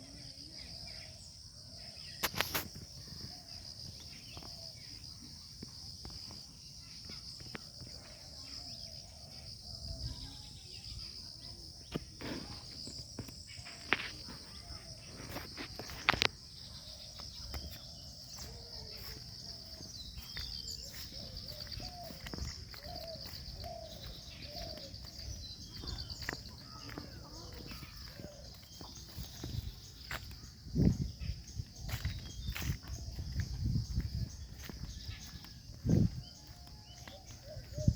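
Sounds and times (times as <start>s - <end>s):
high-pitched insect trill: 0.0s - 37.9s.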